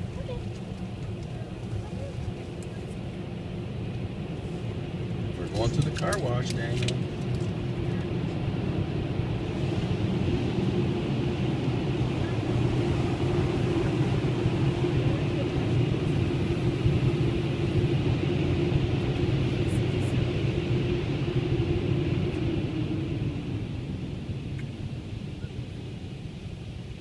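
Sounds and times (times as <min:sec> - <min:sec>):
car wash machine rumble: 0:00.0 - 0:27.0.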